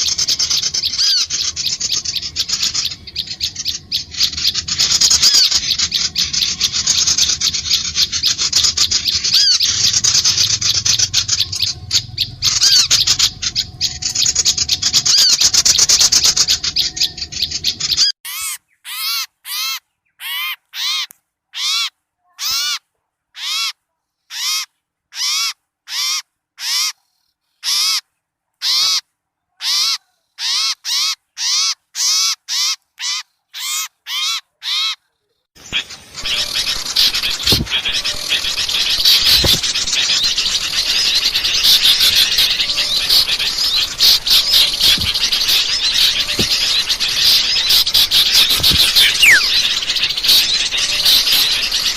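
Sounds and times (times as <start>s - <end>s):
small birds chattering chorus: 0.0s - 22.8s, 29.6s - 51.9s
short arching bird call: 35.6s - 51.9s.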